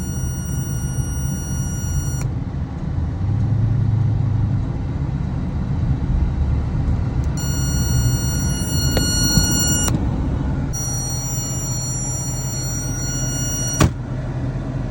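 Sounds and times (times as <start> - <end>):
high even buzzing tone: 0.0 - 2.3, 7.3 - 9.9, 10.8 - 14.0
car engine idling: 6.6 - 14.9.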